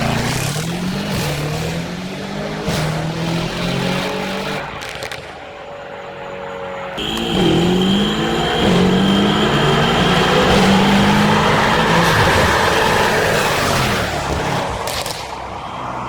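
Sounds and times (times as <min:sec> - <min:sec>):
car engine exhaust revving: 0:07.0 - 0:14.9.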